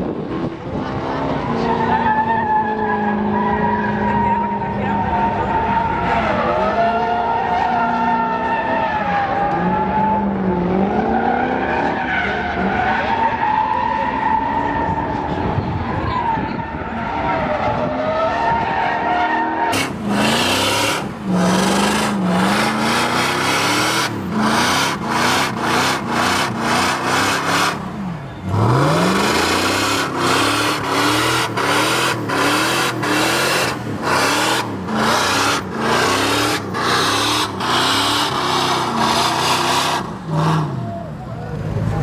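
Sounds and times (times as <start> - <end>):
truck engine revving: 19.7 - 42.0.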